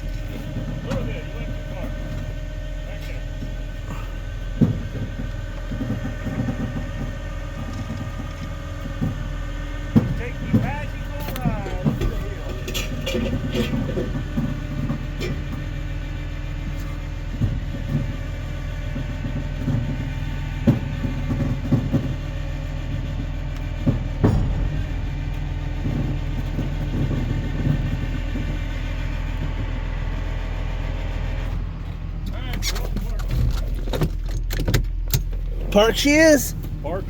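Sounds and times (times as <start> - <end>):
truck engine droning: 0.0 - 37.0
metal clanks and knocks: 3.2 - 15.7, 19.2 - 28.8.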